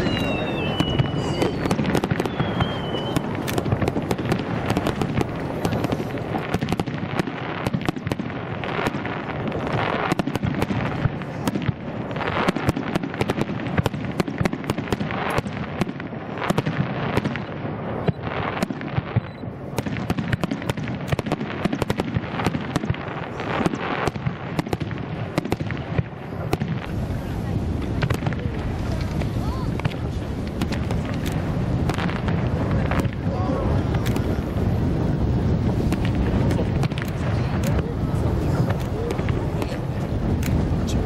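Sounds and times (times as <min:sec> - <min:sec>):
firework shells bursting: 0:00.0 - 0:17.5, 0:27.8 - 0:41.0
booming and crackle: 0:00.0 - 0:41.0.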